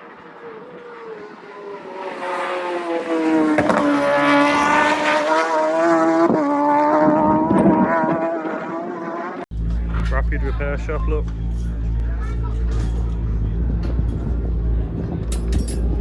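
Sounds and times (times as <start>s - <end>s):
motorcycle engine at high revs: 0.0s - 9.4s.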